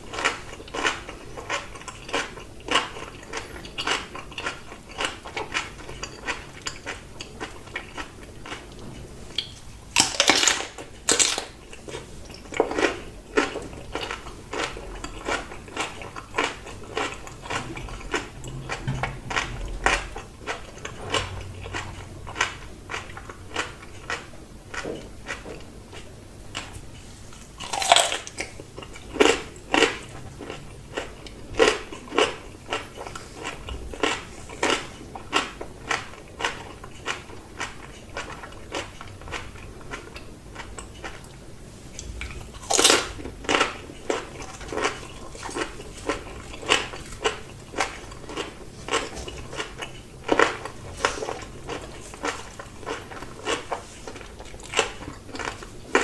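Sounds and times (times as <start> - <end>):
crunchy chewing: 0.0 - 41.4, 42.0 - 56.0
crunching bites: 27.6 - 28.5, 42.5 - 44.9.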